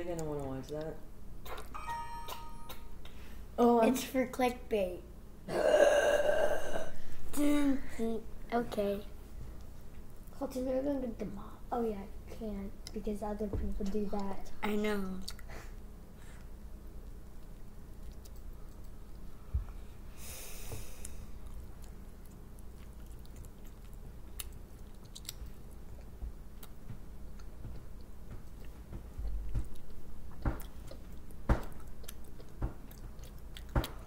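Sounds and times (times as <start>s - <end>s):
child biting and chewing food: 0.1s - 1.8s, 15.1s - 19.4s, 21.0s - 34.0s.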